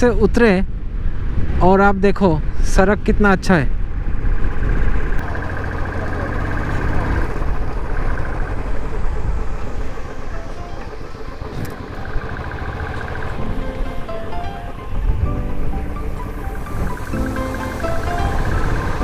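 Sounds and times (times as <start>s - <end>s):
wind rumble on microphone: 0.0s - 5.3s, 13.4s - 19.0s
motorcycle engine running: 3.9s - 19.0s.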